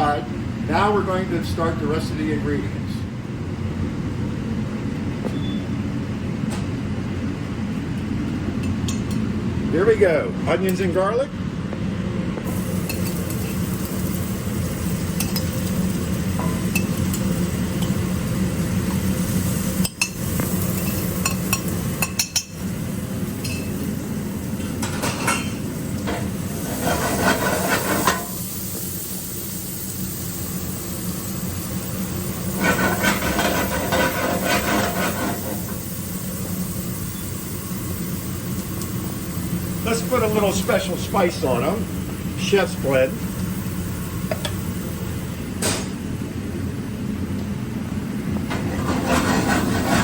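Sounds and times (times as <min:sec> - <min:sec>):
onions sizzling in oil: 0:12.5 - 0:42.5
utensil scraping a pan: 0:26.6 - 0:28.3, 0:32.6 - 0:35.7, 0:48.5 - 0:50.0.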